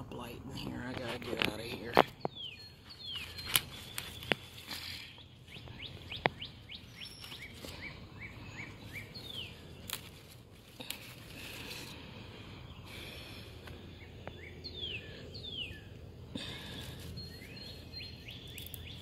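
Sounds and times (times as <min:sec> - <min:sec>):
songbirds chirping: 0:00.0 - 0:19.0
tomato stems snapping: 0:09.8 - 0:11.2, 0:18.5 - 0:19.0.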